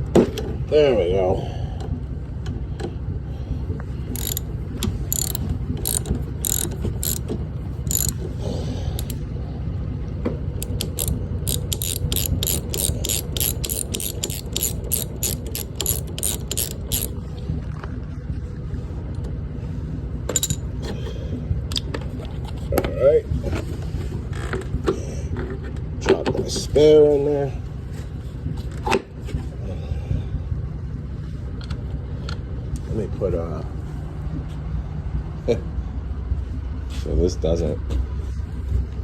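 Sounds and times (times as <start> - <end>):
ratchet wrench clicking: 4.1 - 7.3, 7.9 - 8.3, 9.0 - 9.2, 10.6 - 17.2, 20.3 - 20.6.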